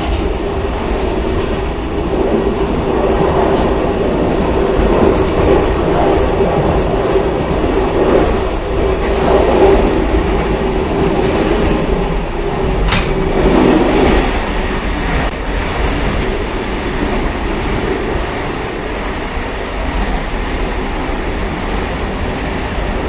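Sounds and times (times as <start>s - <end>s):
railcar wheels rumbling on rail: 0.0s - 23.0s
sharp click: 12.9s - 13.8s.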